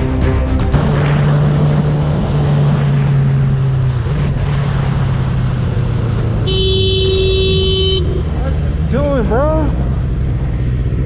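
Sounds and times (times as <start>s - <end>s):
road and wind rush: 0.0s - 11.0s
vehicle engine running: 0.0s - 11.0s
vehicle horn: 6.4s - 8.2s.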